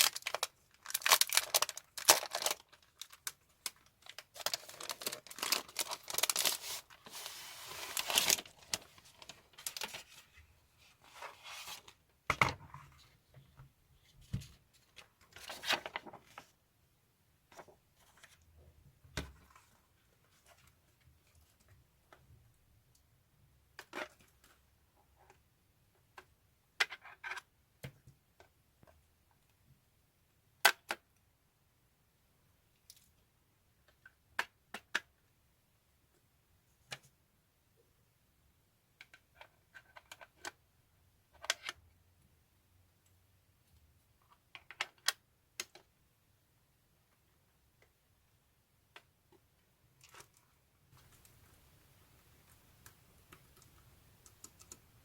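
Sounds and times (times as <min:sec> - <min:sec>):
small objects rustling: 0:00.0 - 0:11.9.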